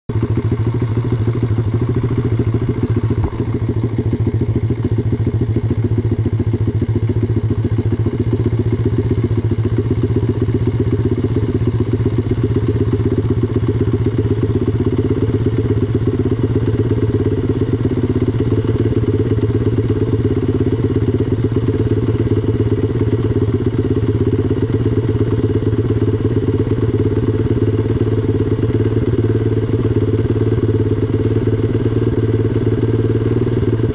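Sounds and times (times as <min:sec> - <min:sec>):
motorbike engine running steadily: 0:00.1 - 0:33.9.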